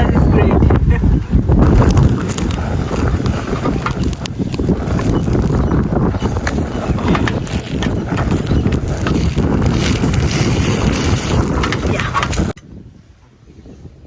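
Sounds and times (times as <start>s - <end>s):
wind buffeting microphone: 0.0s - 14.0s
clicks and rattles: 1.6s - 12.6s.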